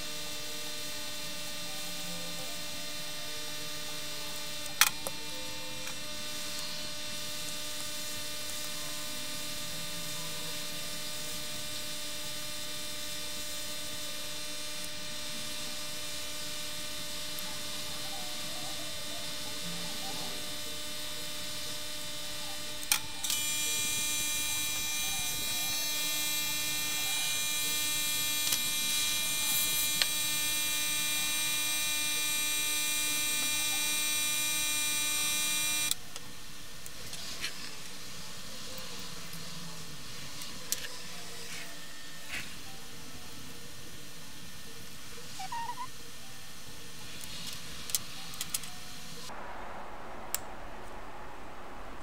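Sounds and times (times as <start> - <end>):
electrical hum: 0.0 - 52.0
high whine: 49.0 - 52.0.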